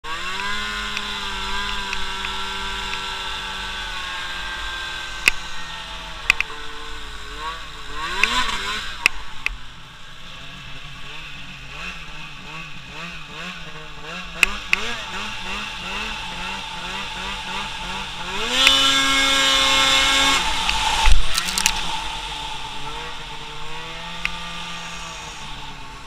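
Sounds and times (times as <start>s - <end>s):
small engine revving: 0.0s - 26.0s
sharp clicks: 6.2s - 6.6s, 20.6s - 21.9s.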